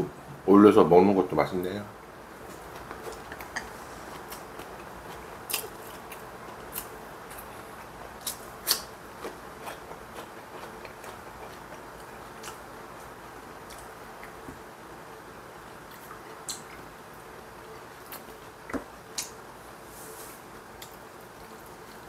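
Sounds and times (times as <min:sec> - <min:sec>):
steady low hiss: 0:00.0 - 0:22.0
chewing crunchy fried food: 0:02.4 - 0:14.7.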